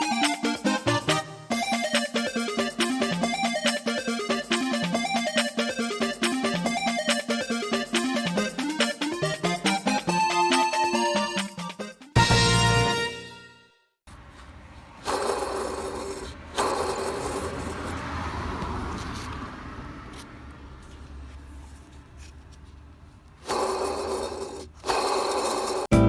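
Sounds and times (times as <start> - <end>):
pulley bearing grinding rasp: 14.1 - 18.3, 22.2 - 25.9.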